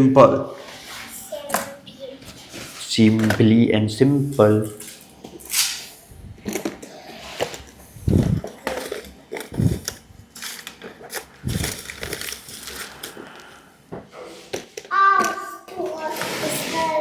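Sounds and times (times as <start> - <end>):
rustling: 7.3 - 13.6
knocks and thumps: 8.0 - 8.6.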